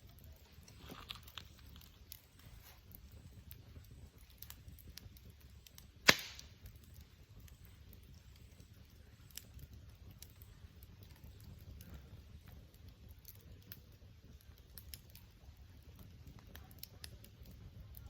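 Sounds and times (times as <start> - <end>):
campfire crackling: 0.0 - 18.0
low steady fire rumble: 0.0 - 18.0.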